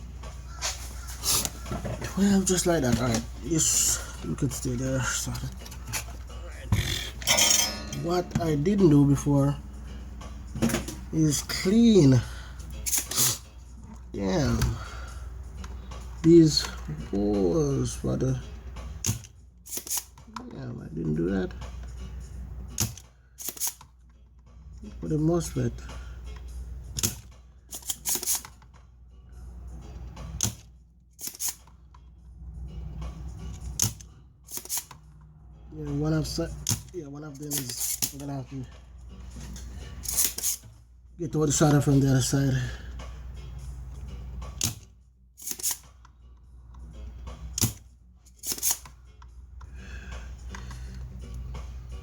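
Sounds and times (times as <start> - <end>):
desoldering pump snapping: 19.0 - 20.4, 22.7 - 23.9, 26.4 - 28.6, 30.4 - 32.0, 33.5 - 35.0, 36.6 - 38.3, 40.0 - 40.7, 44.5 - 46.1, 47.5 - 49.7.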